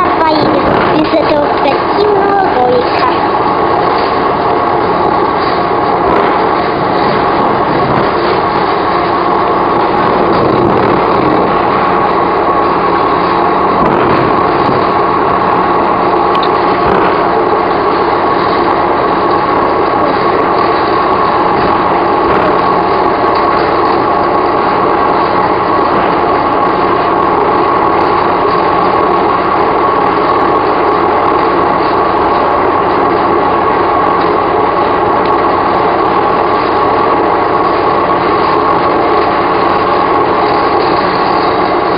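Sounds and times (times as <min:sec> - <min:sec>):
train wheels rumbling on rail: 0:00.0 - 0:41.9.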